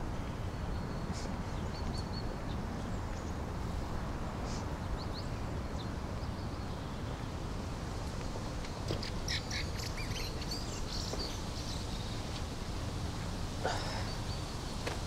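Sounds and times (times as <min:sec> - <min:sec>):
outdoor background: 0:00.0 - 0:15.0
birds chirping: 0:08.2 - 0:15.0.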